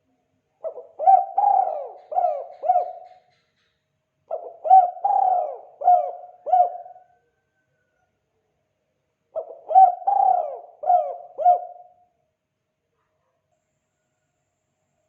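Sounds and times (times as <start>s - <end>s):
dove cooing: 0.6s - 3.3s, 4.3s - 7.2s, 9.4s - 12.1s.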